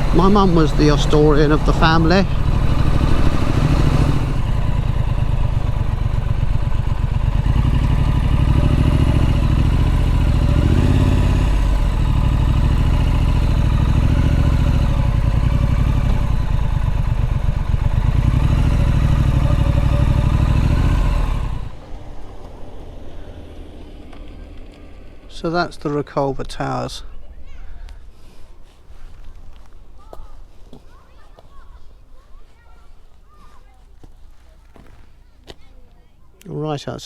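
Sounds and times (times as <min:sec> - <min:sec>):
motorcycle engine revving: 0:00.0 - 0:27.1.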